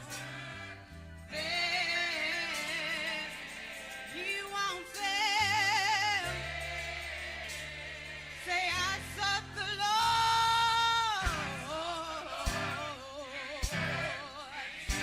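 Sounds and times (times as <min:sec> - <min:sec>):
gospel choir singing: 0:00.0 - 0:15.0
sustained bass notes: 0:08.2 - 0:13.0, 0:13.7 - 0:14.2.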